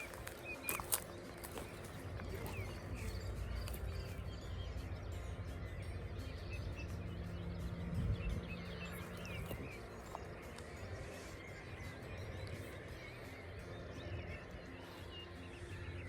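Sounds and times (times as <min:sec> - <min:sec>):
low steady hum: 0:00.0 - 0:16.0
small songbirds chirping: 0:00.0 - 0:16.0
low rumble: 0:01.5 - 0:12.9.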